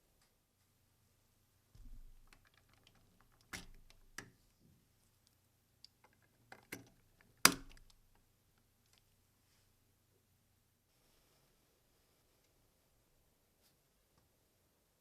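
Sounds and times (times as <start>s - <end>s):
plastic toy parts clicking: 2.2s - 4.3s, 5.8s - 8.2s.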